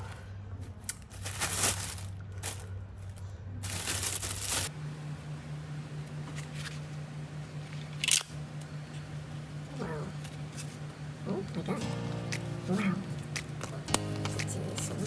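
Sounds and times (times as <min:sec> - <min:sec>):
steady low hum: 0:00.0 - 0:15.0
scratchy rustling and handling: 0:00.9 - 0:04.7.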